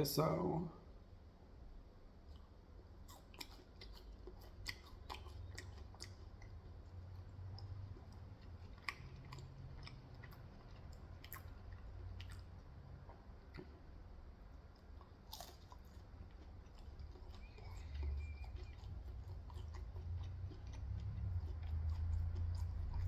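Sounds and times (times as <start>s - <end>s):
faint low hum: 0.0s - 23.0s
chewing food: 2.2s - 23.0s
wet mouth clicks and smacks: 7.2s - 13.9s.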